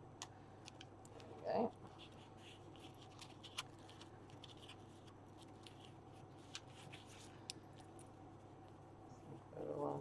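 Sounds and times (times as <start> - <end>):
paper rustling: 1.9 - 7.5.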